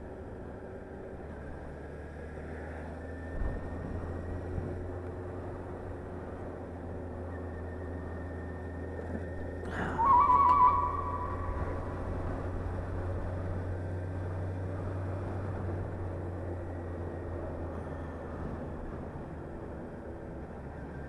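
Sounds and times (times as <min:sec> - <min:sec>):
motorcycle engine drone: 0:00.0 - 0:21.0
wind and road noise: 0:00.0 - 0:21.0
high wavering whistle-like tone: 0:09.8 - 0:11.9.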